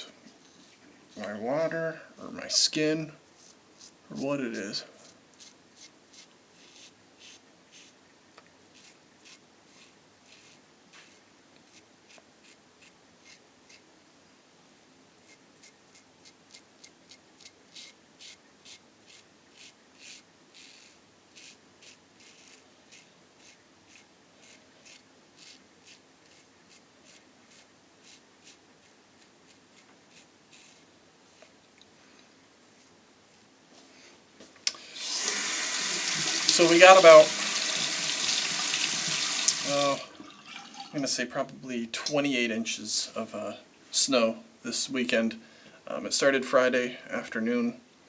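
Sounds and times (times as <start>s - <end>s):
razor scraping stubble: 3.4s - 8.0s, 8.7s - 13.8s, 15.2s - 31.5s, 32.7s - 33.5s.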